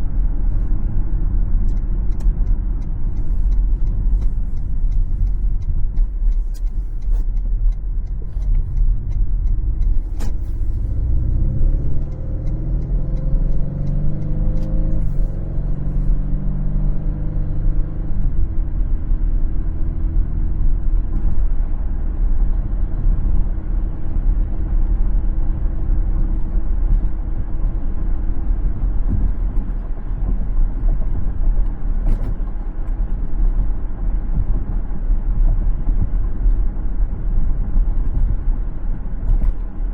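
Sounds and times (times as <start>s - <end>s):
car road rumble: 0.0s - 39.9s
engine accelerating: 1.4s - 20.9s.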